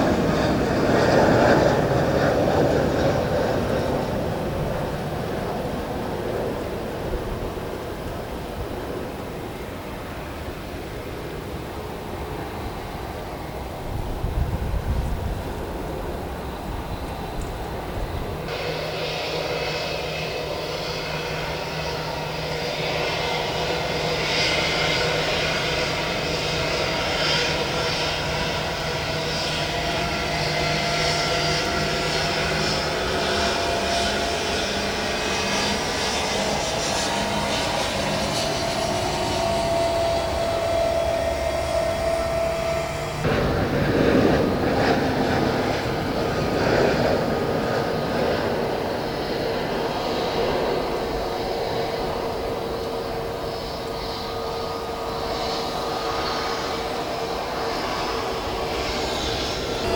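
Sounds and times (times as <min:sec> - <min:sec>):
jet engine whine: 0:00.0 - 0:59.9
rushing noise: 0:36.6 - 0:48.0.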